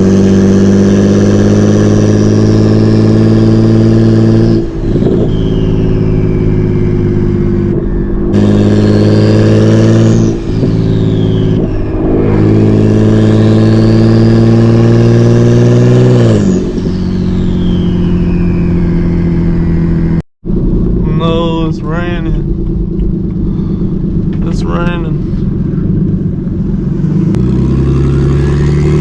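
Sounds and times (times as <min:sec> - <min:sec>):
car engine pulling hard: 0:00.0 - 0:29.0
turbo whistle: 0:02.3 - 0:19.9.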